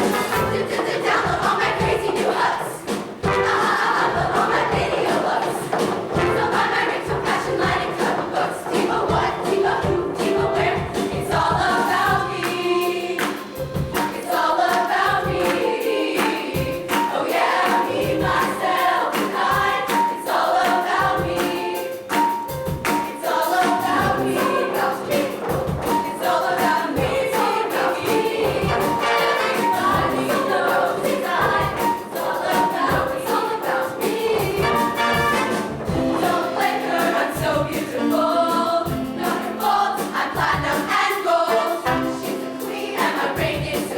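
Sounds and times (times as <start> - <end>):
live band playing: 0.0 - 1.0, 2.8 - 4.9, 5.9 - 7.8, 19.5 - 43.8
choir singing: 0.0 - 43.9
steady drum beat: 0.0 - 43.9.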